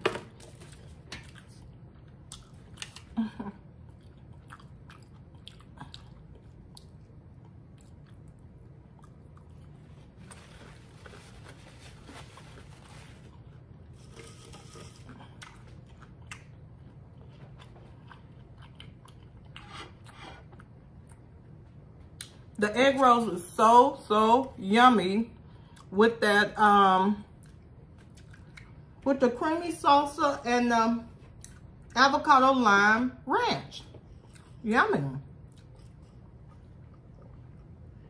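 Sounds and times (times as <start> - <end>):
steady low hum: 0.0 - 38.0
person chewing food: 0.7 - 11.2, 13.2 - 22.4, 27.4 - 29.0, 31.2 - 32.0, 34.0 - 34.6, 35.4 - 38.0.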